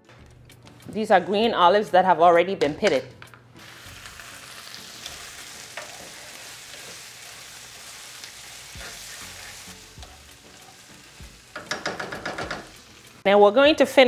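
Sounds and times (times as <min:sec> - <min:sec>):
onions sizzling in a frying pan: 0:03.6 - 0:14.0
wooden spatula stirring: 0:05.8 - 0:12.8.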